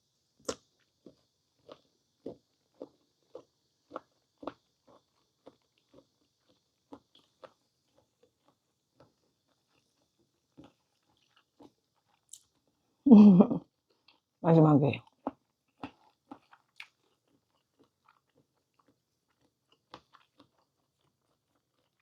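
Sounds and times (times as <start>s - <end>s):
wet chewing clicks and smacks: 0.4s - 12.8s, 15.0s - 22.0s
person humming: 13.1s - 13.6s.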